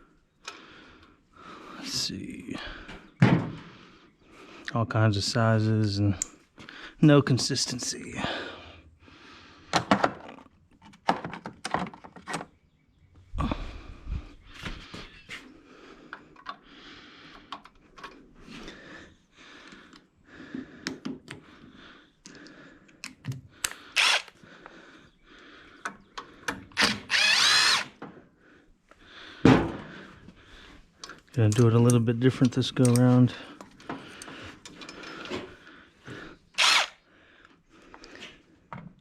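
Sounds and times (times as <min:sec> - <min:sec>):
power tool on bolts: 0:24.0 - 0:24.4, 0:26.8 - 0:27.9, 0:36.6 - 0:37.0
metal tools clicking and knocking: 0:31.0 - 0:35.4.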